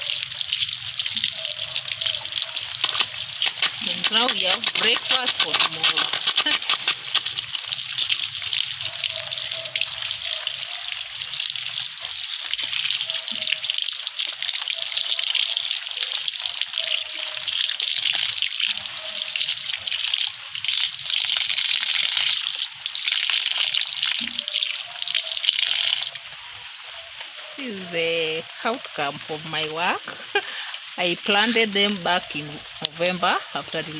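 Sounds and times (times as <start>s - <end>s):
water splashing and pouring: 0.0s - 27.0s.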